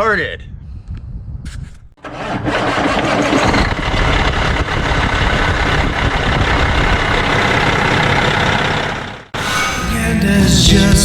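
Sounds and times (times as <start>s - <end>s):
diesel truck engine running: 2.0s - 11.0s.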